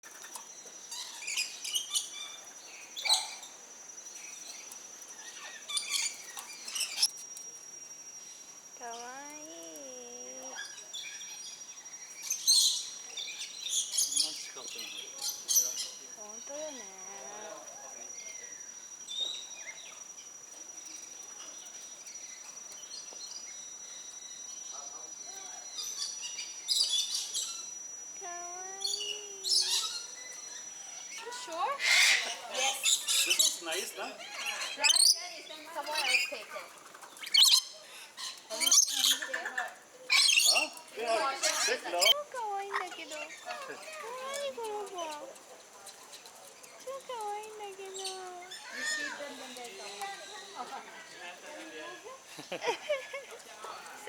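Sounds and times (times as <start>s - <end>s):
steady high-pitched whine: 0.1s - 34.3s
parakeets chirping: 0.7s - 7.2s, 8.3s - 20.3s, 25.2s - 45.4s, 46.5s - 52.0s
faint steady high tone: 2.1s - 13.6s, 14.3s - 31.8s
parakeets chirping and squawking: 28.6s - 45.3s.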